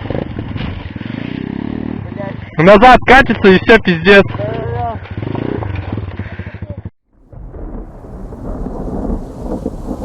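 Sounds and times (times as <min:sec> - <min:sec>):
low rumble of thunder: 0:07.2 - 0:10.0
rain: 0:07.2 - 0:10.0.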